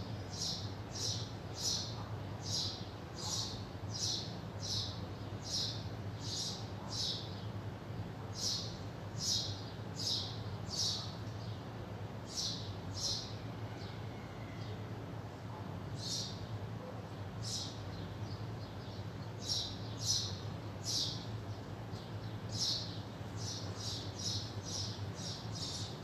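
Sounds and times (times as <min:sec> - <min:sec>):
steady low hum: 0:00.0 - 0:26.0
small bird chirping: 0:00.2 - 0:07.4, 0:08.4 - 0:11.6, 0:17.4 - 0:26.0.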